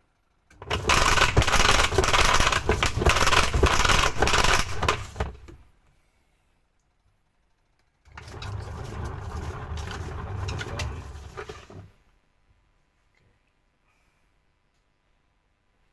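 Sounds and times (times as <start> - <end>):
washing machine grinding rattle: 0.6 - 5.6, 8.1 - 11.9.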